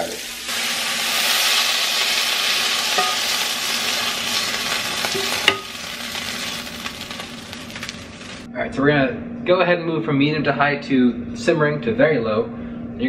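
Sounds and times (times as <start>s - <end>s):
chicken sizzling in a frying pan: 0.0s - 8.5s
spatula clinking: 2.9s - 3.4s, 5.0s - 5.9s.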